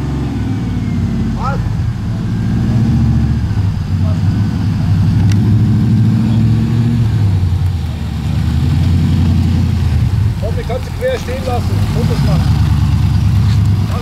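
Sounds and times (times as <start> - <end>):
car engine rumbling: 0.0 - 14.0.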